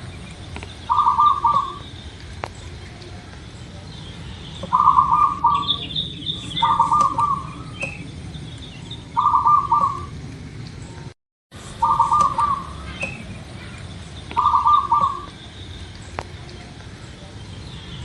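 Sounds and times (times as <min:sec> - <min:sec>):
small birds chirping faintly: 0:00.0 - 0:18.0
dove cooing: 0:00.9 - 0:01.9, 0:04.5 - 0:10.4, 0:11.8 - 0:15.4.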